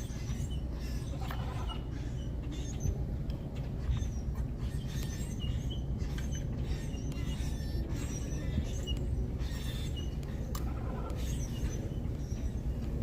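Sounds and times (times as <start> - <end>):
steady low rumble: 0.0 - 13.0
high bird chirps: 3.8 - 12.8.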